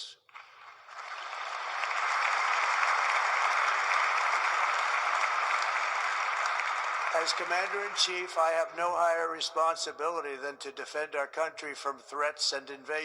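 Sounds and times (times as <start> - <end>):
large audience applauding: 0.3 - 8.8.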